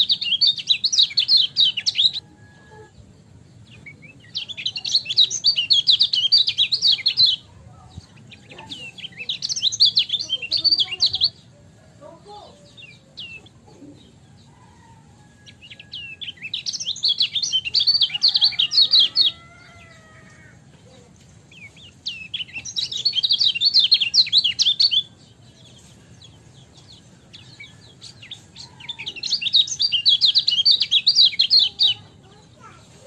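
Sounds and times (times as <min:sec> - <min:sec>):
bird high rapid chirps: 0:00.0 - 0:11.5, 0:15.5 - 0:33.0.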